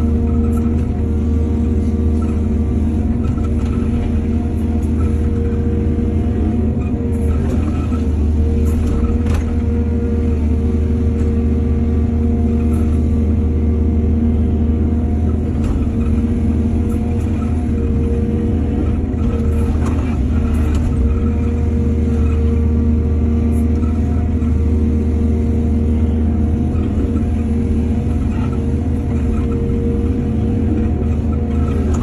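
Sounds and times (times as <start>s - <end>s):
heavy diesel engine running: 0.0s - 32.0s.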